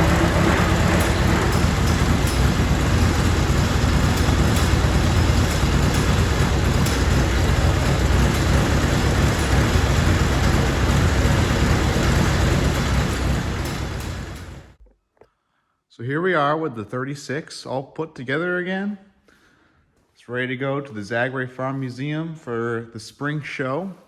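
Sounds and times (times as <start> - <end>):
tractor engine running: 0.0 - 14.8.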